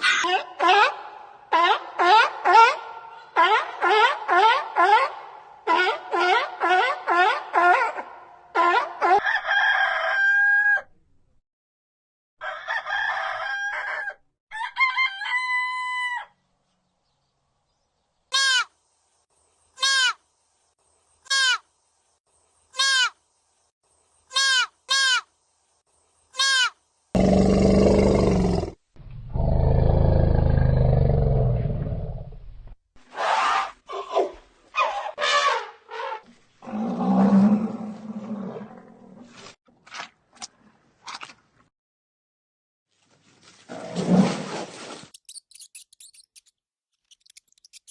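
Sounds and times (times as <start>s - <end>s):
rooster crowing: 9.2s - 10.9s, 12.4s - 16.4s.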